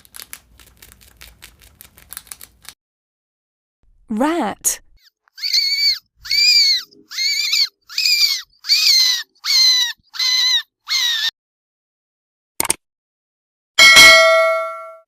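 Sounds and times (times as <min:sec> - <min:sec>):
rat squeaking: 0:05.0 - 0:11.3.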